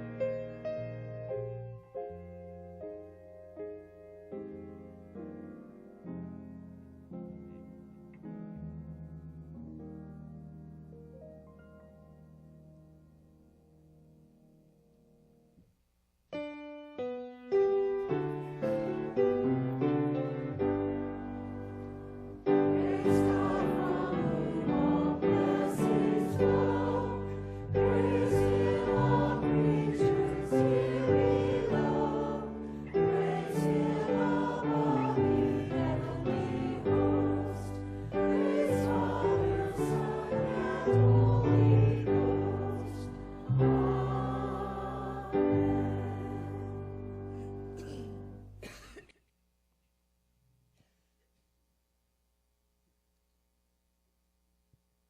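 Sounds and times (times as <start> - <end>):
choir singing a worship song: 22.4 - 47.2.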